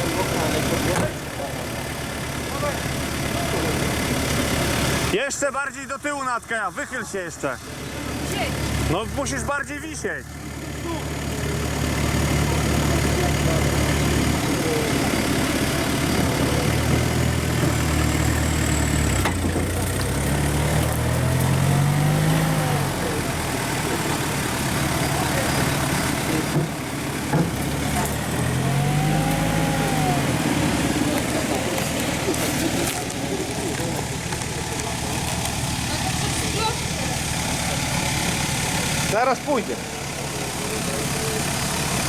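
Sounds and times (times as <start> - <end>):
off-road vehicle engine revving: 0.0 - 42.0.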